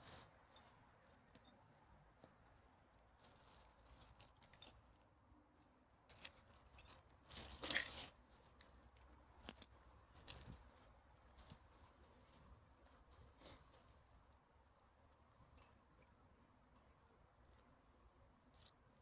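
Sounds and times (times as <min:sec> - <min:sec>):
rustling of dry debris: 0:00.0 - 0:01.3, 0:02.1 - 0:05.2, 0:06.0 - 0:14.4.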